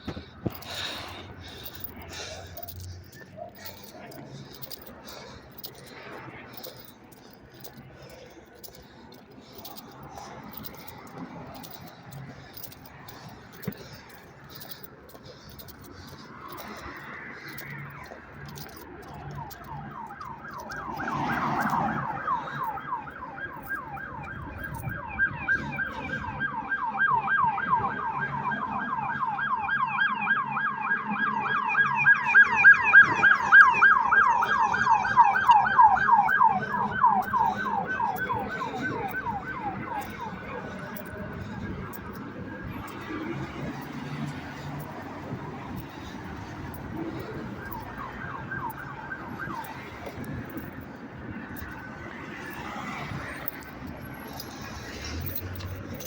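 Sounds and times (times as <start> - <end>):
siren yelping: 16.4 - 54.6.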